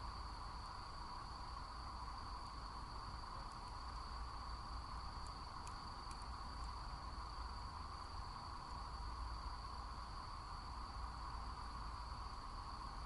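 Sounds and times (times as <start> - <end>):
crickets trilling: 0.0 - 13.0
campfire crackles: 2.2 - 8.8.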